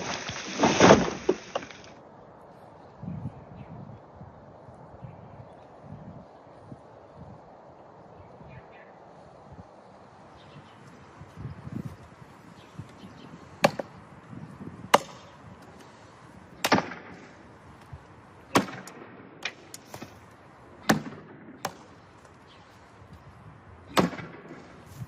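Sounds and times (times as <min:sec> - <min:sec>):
blade chopping strikes: 0:14.9 - 0:15.3, 0:16.6 - 0:17.3, 0:18.5 - 0:20.2, 0:20.8 - 0:22.0, 0:23.9 - 0:24.9.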